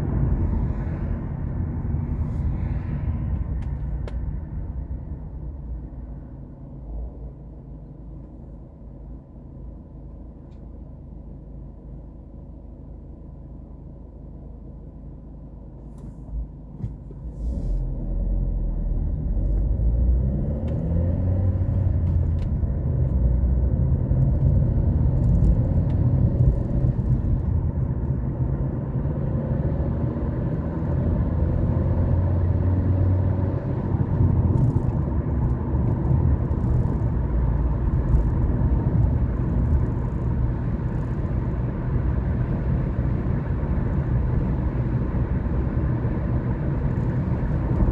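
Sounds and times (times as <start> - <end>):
car engine accelerating: 17.2 - 47.9
tyre rumble: 33.5 - 42.1.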